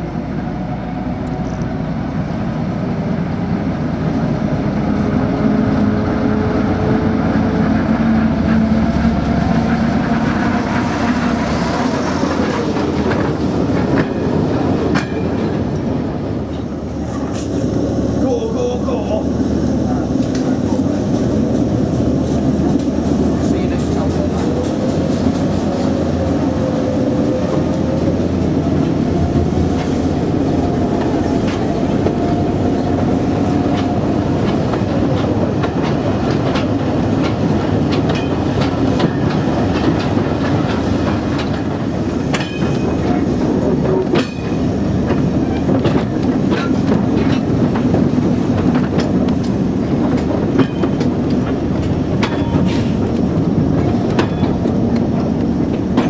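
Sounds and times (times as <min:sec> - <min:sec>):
wheels clicking over rail joints: 0:19.9 - 0:56.0.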